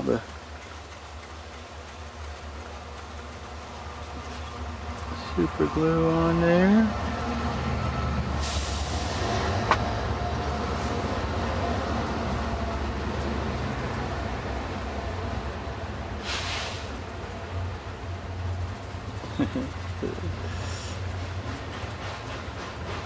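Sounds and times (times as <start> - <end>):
short hissing sounds: 16.2 - 17.0, 20.5 - 21.1.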